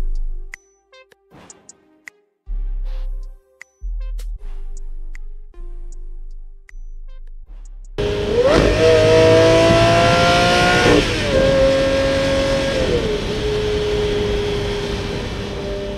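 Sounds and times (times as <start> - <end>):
car engine accelerating hard: 8.0 - 15.9.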